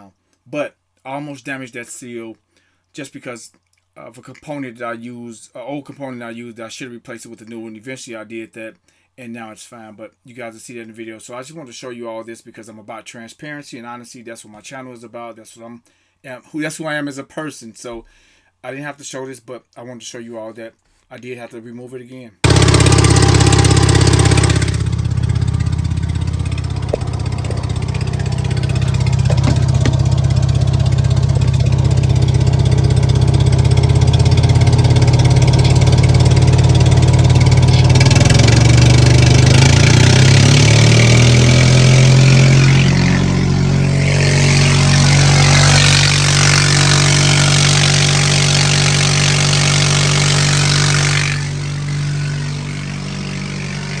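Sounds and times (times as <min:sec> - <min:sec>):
engine running: 0:22.4 - 0:54.0.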